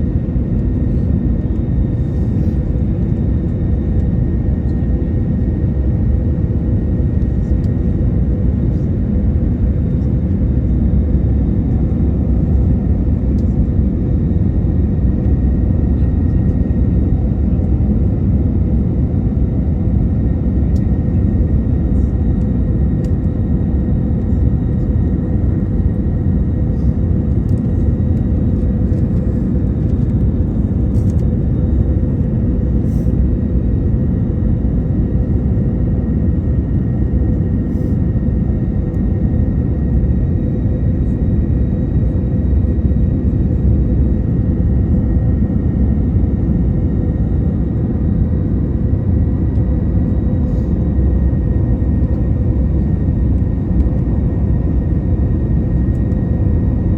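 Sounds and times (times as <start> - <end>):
jet engine and airflow rumble: 0.0 - 56.9.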